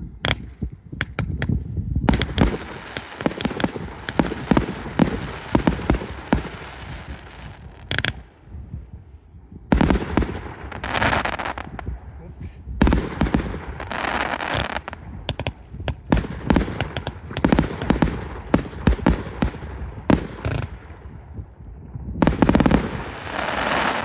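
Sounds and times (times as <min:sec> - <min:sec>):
firework crackling: 0:02.1 - 0:08.1, 0:09.7 - 0:11.8, 0:12.8 - 0:20.8, 0:22.2 - 0:24.0
firework bangs: 0:02.1 - 0:08.2, 0:09.7 - 0:11.8, 0:12.8 - 0:21.0, 0:22.2 - 0:24.0.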